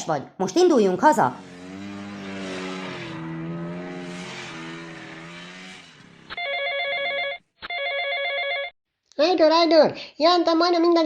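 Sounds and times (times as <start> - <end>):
vehicle engine running: 1.0 - 6.4
electronic phone ringtone: 6.3 - 8.7.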